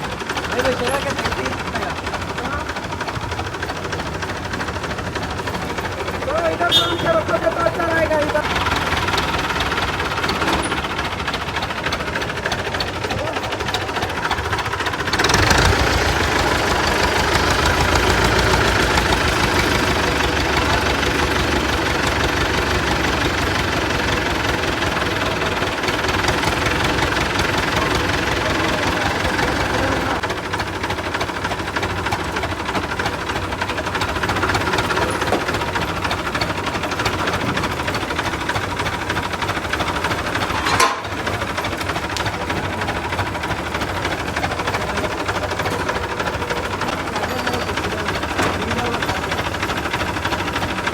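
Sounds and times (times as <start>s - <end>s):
forklift engine running: 0.0s - 50.9s.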